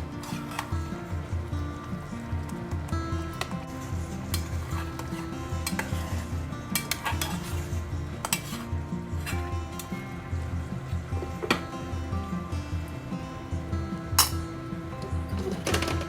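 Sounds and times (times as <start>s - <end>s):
background music: 0.0s - 16.0s
utensil stirring food in a pot: 0.0s - 16.0s
utensil clinking against pot: 3.3s - 10.0s, 14.1s - 16.0s.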